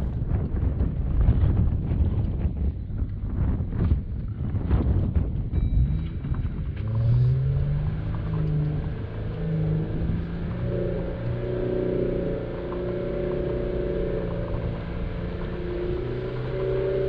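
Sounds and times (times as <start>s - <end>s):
car engine revving: 5.8s - 17.0s.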